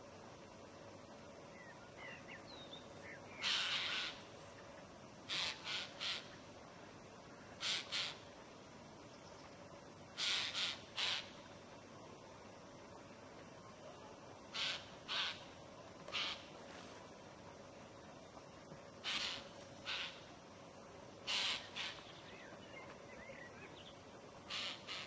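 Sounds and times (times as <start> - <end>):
faint high bird chirps: 1.5 - 4.6
crows cawing: 3.4 - 4.2, 5.3 - 6.3, 7.6 - 8.2, 10.2 - 11.3, 14.5 - 15.5, 16.1 - 16.5, 19.0 - 20.2, 21.3 - 22.0, 24.5 - 25.0.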